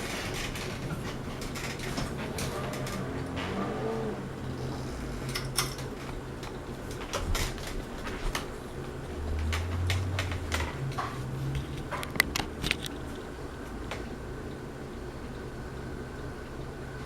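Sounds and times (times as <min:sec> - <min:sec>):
ceiling fan motor humming: 0:00.0 - 0:17.0
sharp clicks and ticks: 0:04.4 - 0:14.6.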